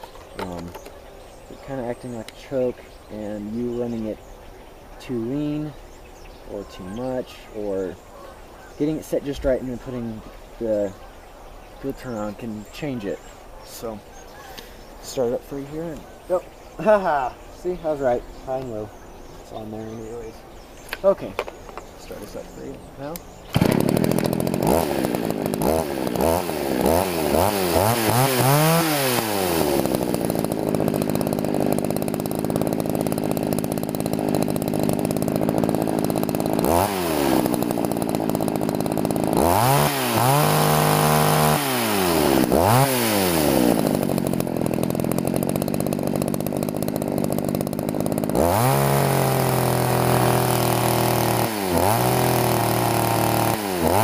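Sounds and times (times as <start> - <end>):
chainsaw engine revving: 0.0 - 0.9, 19.6 - 54.0.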